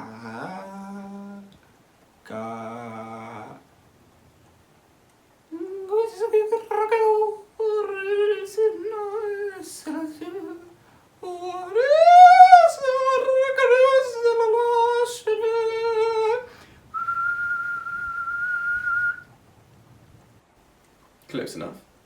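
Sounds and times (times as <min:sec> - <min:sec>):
person humming: 0:05.5 - 0:17.8
whistled note: 0:16.9 - 0:19.3.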